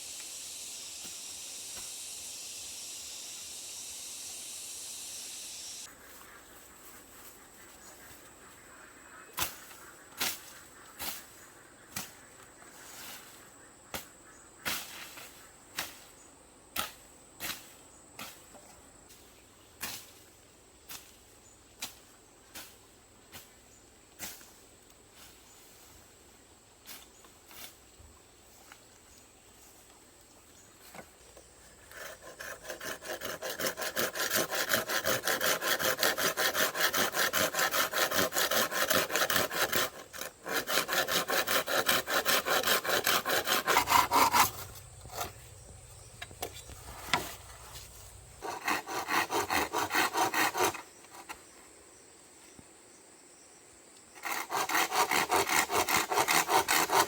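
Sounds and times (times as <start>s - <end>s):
hand saw cutting bamboo: 31.8s - 45.5s, 46.2s - 51.4s, 54.2s - 57.0s.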